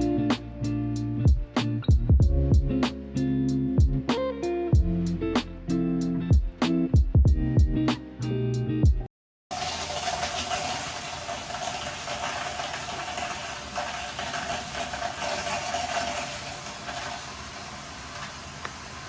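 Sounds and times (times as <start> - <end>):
shower water running: 9.5 - 19.0.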